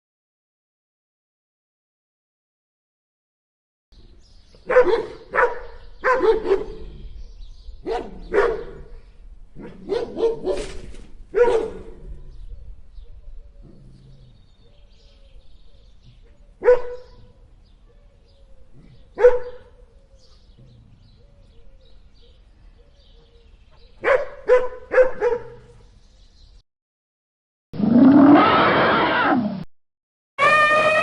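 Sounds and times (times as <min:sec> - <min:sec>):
dog barking: 0:04.6 - 0:06.8, 0:07.8 - 0:08.9, 0:09.6 - 0:12.0, 0:16.6 - 0:17.3, 0:19.2 - 0:19.8, 0:24.0 - 0:25.7.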